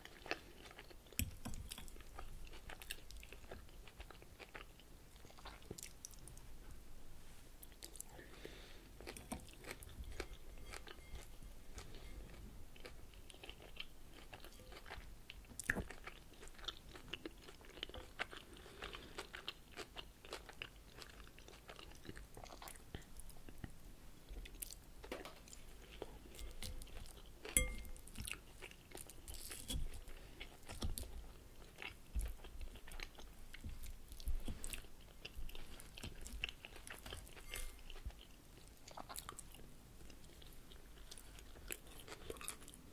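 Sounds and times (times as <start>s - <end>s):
fork scraping glass bowl: 10.2s - 11.4s, 27.6s - 28.0s, 37.4s - 37.9s.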